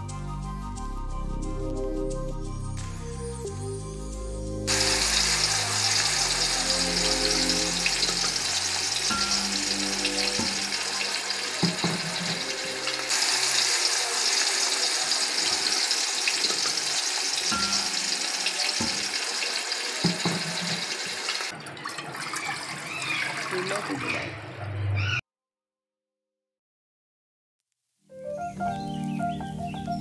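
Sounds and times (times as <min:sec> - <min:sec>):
background music: 0:00.0 - 0:14.0, 0:17.0 - 0:21.9, 0:28.1 - 0:30.0
food sizzling in a clay pot: 0:04.7 - 0:21.5
wooden spoon knocking on pot: 0:11.6 - 0:12.5, 0:20.0 - 0:20.8.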